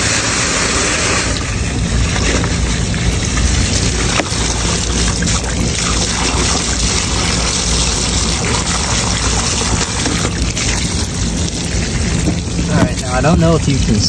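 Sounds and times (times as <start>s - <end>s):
low mechanical hum: 0.0s - 14.0s
water splashing in drain pan: 0.7s - 14.0s.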